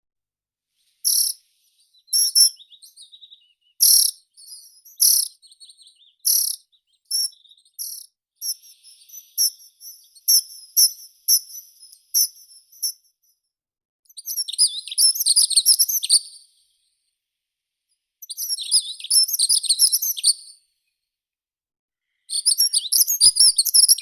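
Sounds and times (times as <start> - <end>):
songbird singing: 0.9 - 13.0, 14.2 - 16.2, 18.3 - 20.3, 22.4 - 24.0.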